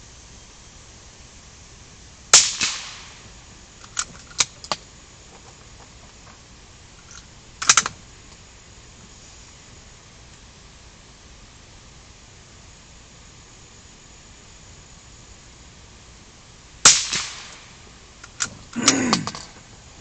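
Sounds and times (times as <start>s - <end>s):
gunshot with echo: 2.4s - 3.2s, 16.9s - 17.7s
sharp clicks: 7.0s - 8.4s.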